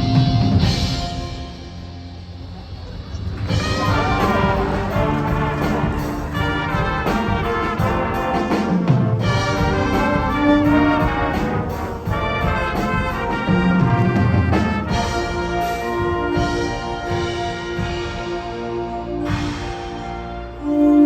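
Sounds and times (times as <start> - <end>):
brass sustained chords: 3.4 - 21.0.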